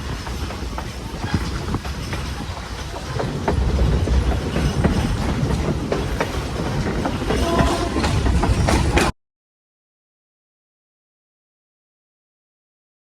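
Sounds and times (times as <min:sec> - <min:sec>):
train cars rumbling: 0:00.0 - 0:09.1
wheels clicking over rail joints: 0:00.0 - 0:09.1.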